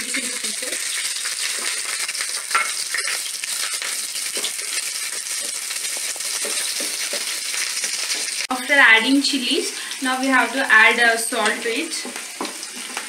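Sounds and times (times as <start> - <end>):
chilies sizzling in hot oil: 0.0 - 13.0
wooden spatula tapping a pan: 6.3 - 7.4.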